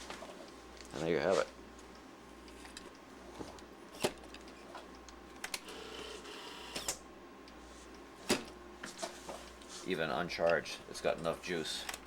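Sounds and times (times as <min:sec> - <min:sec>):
camcorder faint whir: 0:02.0 - 0:09.7.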